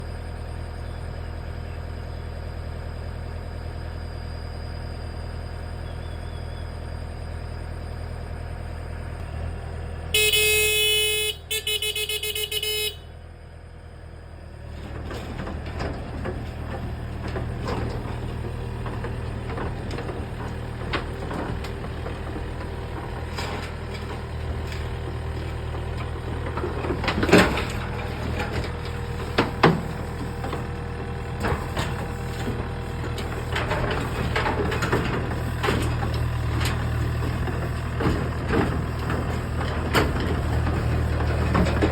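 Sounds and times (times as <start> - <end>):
diesel engine running: 0.0 - 41.9
horn blasts: 10.1 - 13.2
machine clattering and knocking: 31.4 - 41.9.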